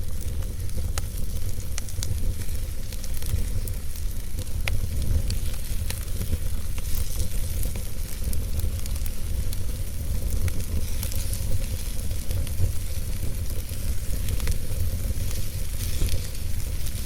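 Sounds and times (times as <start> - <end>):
logs burning in a fireplace: 0.0 - 17.0.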